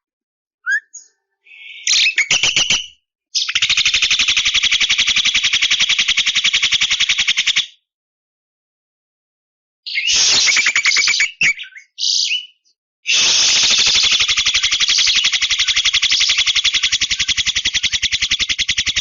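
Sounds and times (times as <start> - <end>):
myna calling: 0.7 - 2.1.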